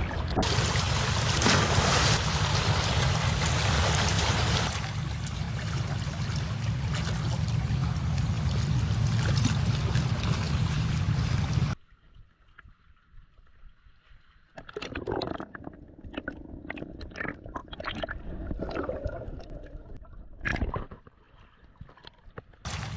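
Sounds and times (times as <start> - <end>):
rushing water: 0.0 - 11.8, 22.7 - 22.9
wind rumble on microphone: 0.0 - 11.8.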